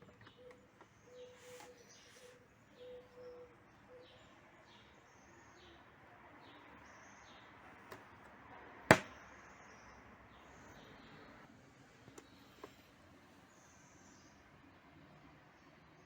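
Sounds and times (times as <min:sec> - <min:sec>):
bird chirping: 0:00.0 - 0:08.2.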